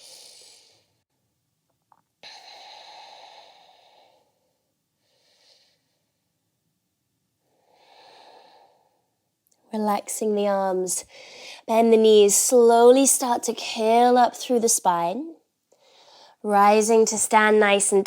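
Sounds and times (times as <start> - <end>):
person breathing slowly: 0.0 - 1.0, 2.2 - 6.3, 7.4 - 9.2, 11.1 - 11.7, 15.7 - 16.4.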